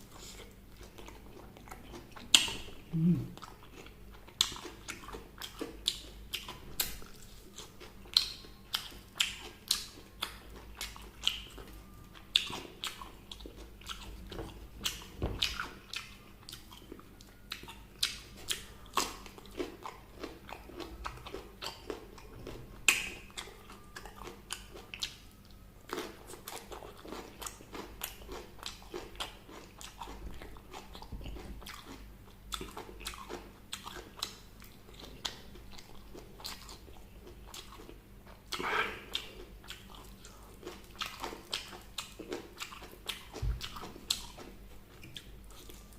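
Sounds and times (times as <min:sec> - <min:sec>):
wet chewing: 0:00.1 - 0:25.2, 0:25.9 - 0:45.9.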